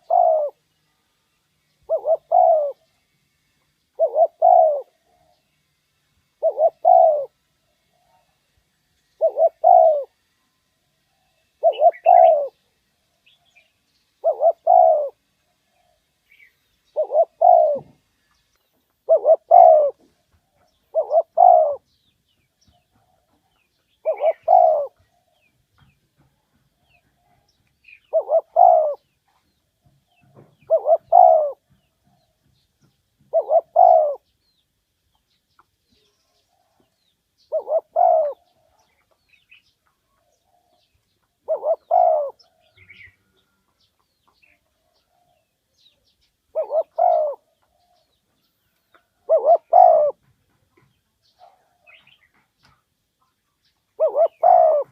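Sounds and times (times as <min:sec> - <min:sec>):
dove cooing: 0:00.0 - 0:00.6, 0:01.8 - 0:02.9, 0:04.0 - 0:05.3, 0:06.4 - 0:08.4, 0:09.2 - 0:10.2, 0:11.6 - 0:12.6, 0:14.2 - 0:16.1, 0:16.9 - 0:18.0, 0:19.0 - 0:22.0, 0:22.7 - 0:25.5, 0:26.9 - 0:29.2, 0:30.2 - 0:32.4, 0:33.2 - 0:34.3, 0:36.4 - 0:38.9, 0:40.2 - 0:43.5, 0:46.5 - 0:48.2, 0:49.0 - 0:50.3, 0:54.0 - 0:54.9.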